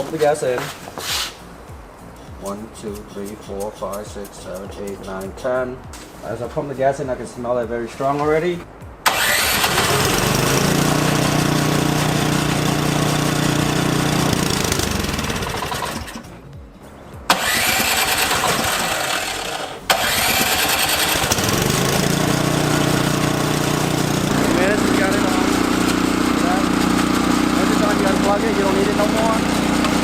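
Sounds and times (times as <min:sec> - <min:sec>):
snowblower engine cranking: 0:09.1 - 0:16.3, 0:17.3 - 0:30.0.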